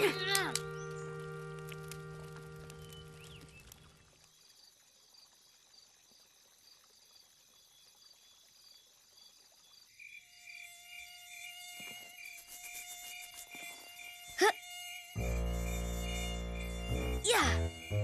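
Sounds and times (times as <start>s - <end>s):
crickets chirping: 0.6s - 18.0s
mosquito whining buzz: 10.4s - 18.0s.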